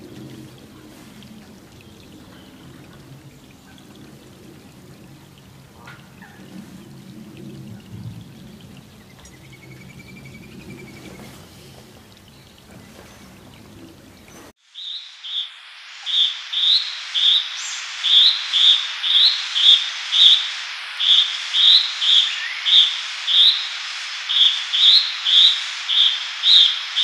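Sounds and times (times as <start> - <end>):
faint rain patter: 0.0 - 14.6
steady hiss: 14.4 - 27.0.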